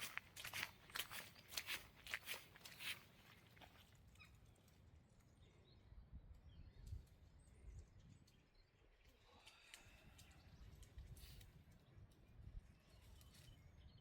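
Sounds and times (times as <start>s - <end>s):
footsteps on wet ground: 0.0s - 4.2s.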